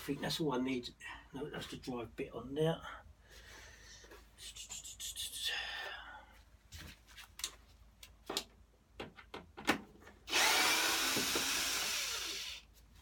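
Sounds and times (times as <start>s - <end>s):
power drill-driver running: 10.3s - 12.6s.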